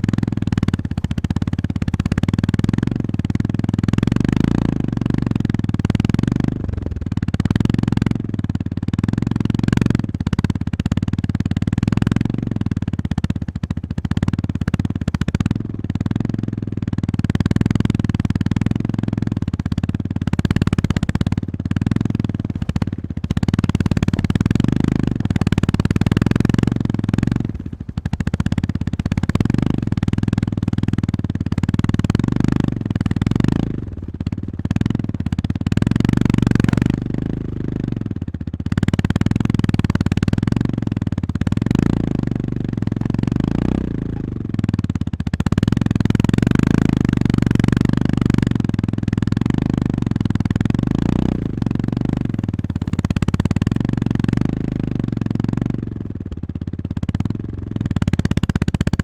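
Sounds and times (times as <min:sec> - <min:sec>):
motorcycle engine under throttle: 0:00.0 - 0:59.0.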